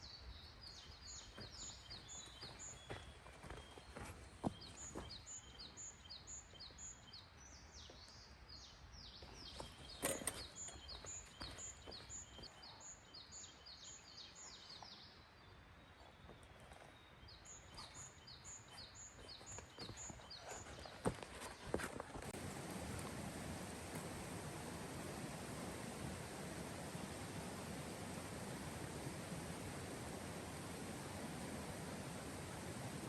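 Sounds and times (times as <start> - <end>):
bird chirping: 0.0 - 23.1.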